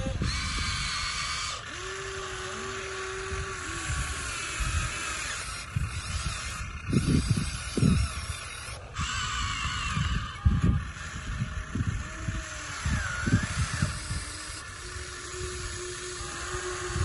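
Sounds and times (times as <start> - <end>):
toy gear motors whining: 0.0 - 17.0.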